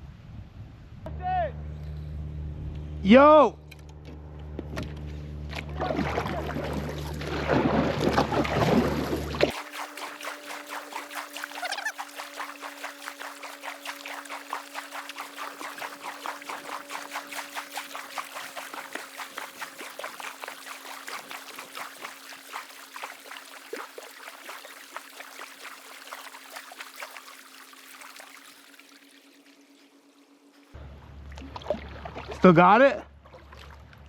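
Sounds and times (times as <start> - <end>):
water splashing against kayak hull: 5.5 - 29.5, 31.1 - 34.0.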